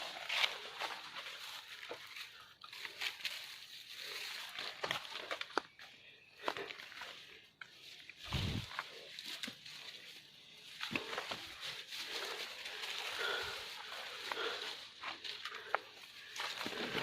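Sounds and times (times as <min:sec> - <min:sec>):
rustling and crunching: 0:00.0 - 0:17.0.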